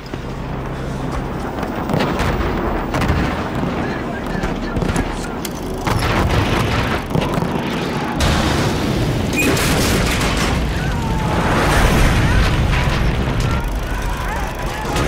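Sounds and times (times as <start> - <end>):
booms and explosions: 1.4 - 15.0
gunfire bursts: 1.7 - 10.8.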